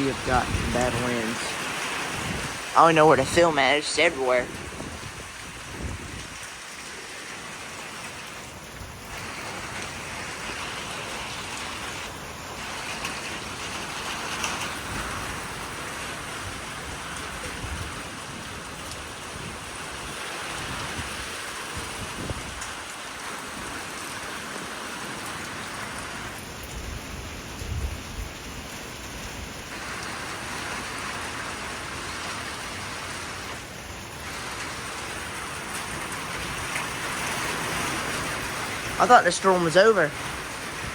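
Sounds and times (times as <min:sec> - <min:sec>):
low thunder rumbles: 0:00.0 - 0:03.4, 0:04.4 - 0:06.8
gusting wind: 0:00.0 - 0:40.9
heavy rain: 0:00.0 - 0:40.9.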